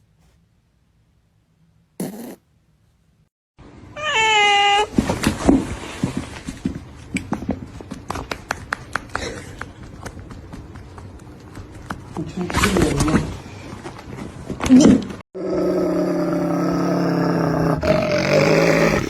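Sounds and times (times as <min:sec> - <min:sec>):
cat meowing: 0:04.0 - 0:04.9.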